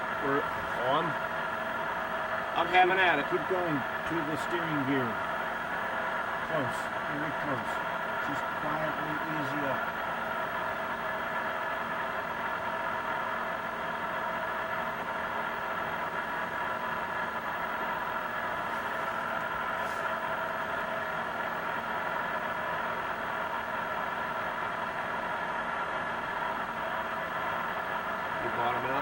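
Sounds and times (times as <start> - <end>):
steady machinery hum: 0.0 - 29.0.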